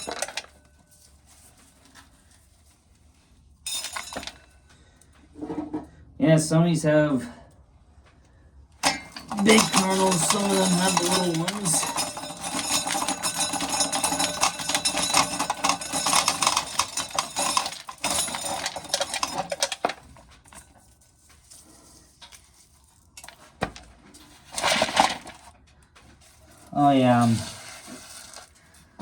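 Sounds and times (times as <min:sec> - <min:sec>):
corn kernels rattling into metal can: 0:00.0 - 0:00.6, 0:08.8 - 0:25.5, 0:26.2 - 0:29.0.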